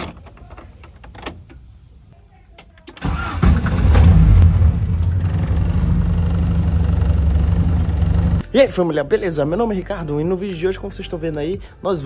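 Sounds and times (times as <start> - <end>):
car engine starting and idling: 2.9 - 8.4.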